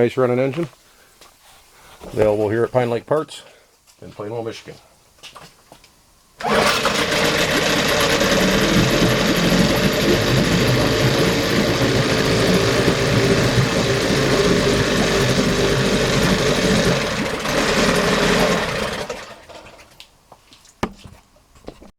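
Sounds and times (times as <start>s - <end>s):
outboard motor running: 6.4s - 19.8s.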